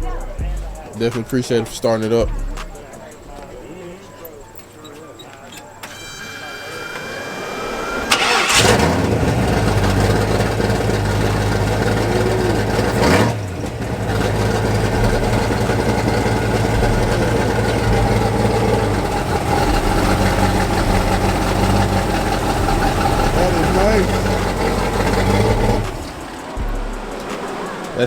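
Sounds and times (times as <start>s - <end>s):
car engine idling: 0.0s - 28.0s
engine revving: 5.8s - 28.0s.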